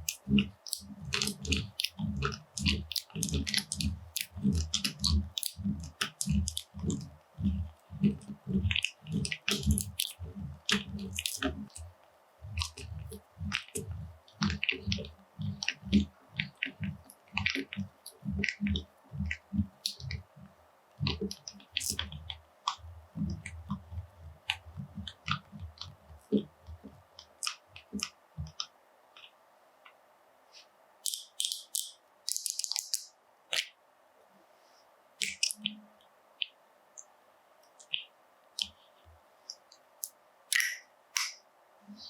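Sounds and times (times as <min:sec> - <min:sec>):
soft squishes: 0:00.0 - 0:33.8, 0:34.5 - 0:42.0.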